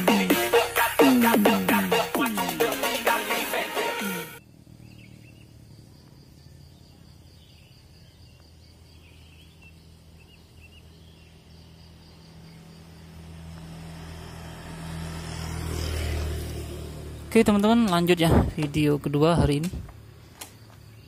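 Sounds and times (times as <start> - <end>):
low engine hum: 4.4 - 7.2, 7.8 - 21.0
bird chirps: 4.4 - 12.8
insects trilling: 4.4 - 17.8, 20.0 - 21.0.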